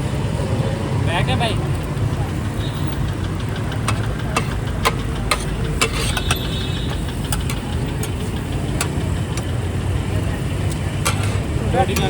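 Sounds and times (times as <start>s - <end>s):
road traffic rumble: 0.0s - 12.0s
sharp clicks: 2.7s - 12.0s.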